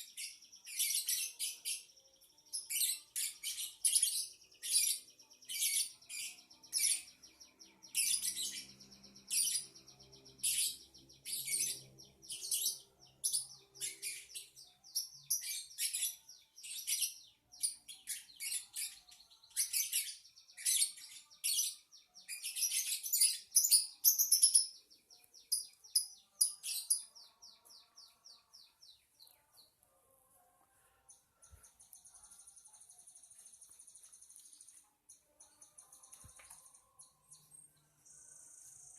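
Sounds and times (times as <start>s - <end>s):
lovebird chirping: 2.5s - 29.8s.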